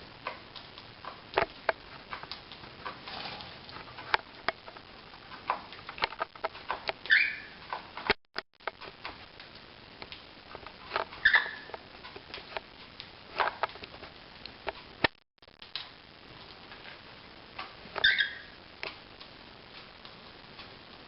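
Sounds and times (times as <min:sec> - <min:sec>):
light clicks taps and scratches: 0:00.2 - 0:17.0
cockatiel chirps: 0:07.0 - 0:07.6, 0:11.2 - 0:11.7, 0:18.0 - 0:18.6.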